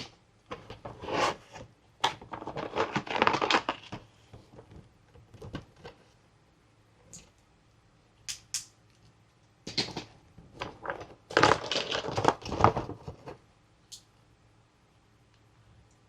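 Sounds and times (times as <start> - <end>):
packaging crinkling: 2.2 - 4.0, 10.6 - 13.3.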